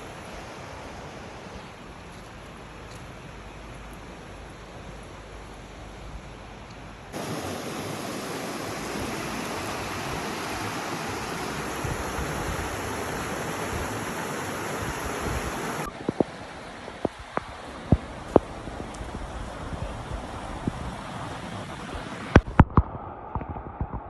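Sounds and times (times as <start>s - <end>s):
faint wind: 0.0s - 24.0s
waterfall rushing: 7.2s - 15.9s.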